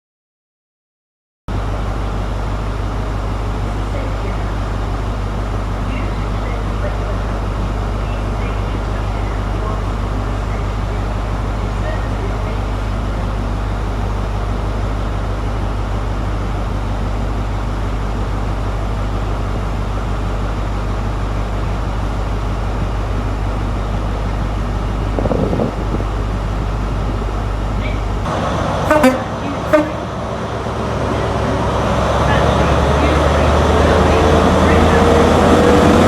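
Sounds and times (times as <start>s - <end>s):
train rumbling low: 1.5s - 36.0s
short train toots: 28.9s - 30.1s.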